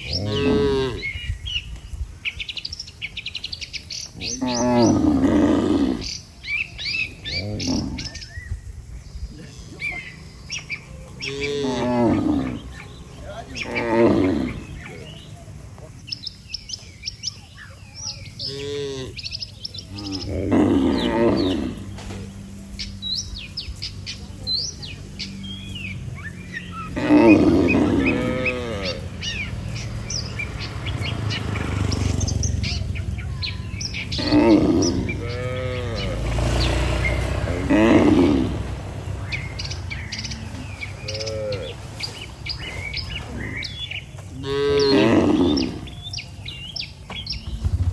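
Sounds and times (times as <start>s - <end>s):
cattle mooing: 0.0s - 1.3s, 4.2s - 6.2s, 7.0s - 8.3s, 10.7s - 15.2s, 18.4s - 19.3s, 19.9s - 22.9s, 25.1s - 46.2s
small birds chirping: 0.0s - 47.9s.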